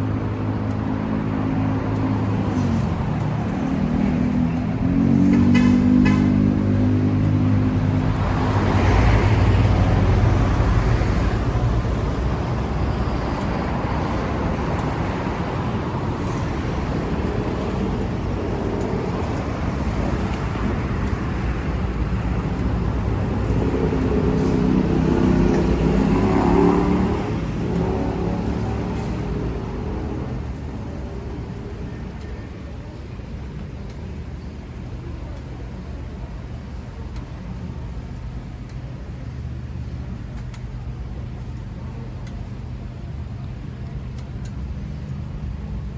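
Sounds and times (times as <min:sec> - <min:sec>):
motorcycle engine revving: 0:23.1 - 0:30.5.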